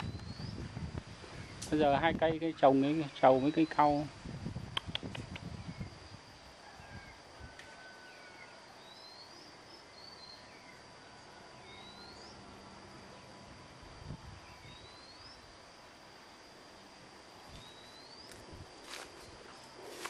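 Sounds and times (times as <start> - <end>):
bird chirping: 2.9 - 4.0, 8.2 - 12.5, 14.4 - 15.5, 17.5 - 18.3
faint high-pitched tone: 5.6 - 20.0.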